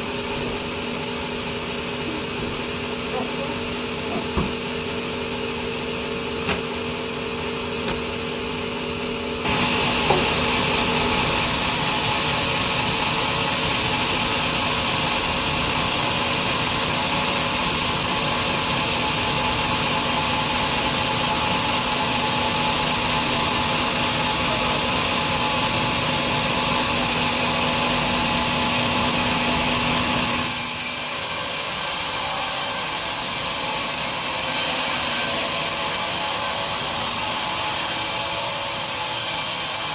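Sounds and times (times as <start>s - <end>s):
bandsaw cutting log: 9.4s - 39.9s
bandsaw humming: 9.4s - 39.9s.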